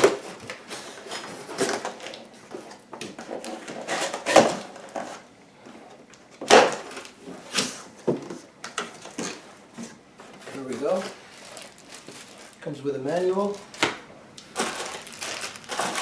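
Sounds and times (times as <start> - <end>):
cardboard box scraping and rustling: 15.7 - 16.0.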